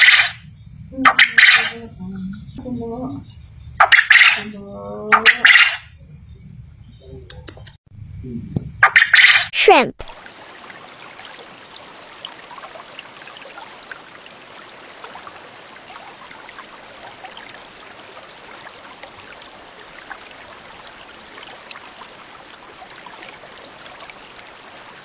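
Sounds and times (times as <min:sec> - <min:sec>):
water hiss with crackles: 0:10.0 - 0:25.0.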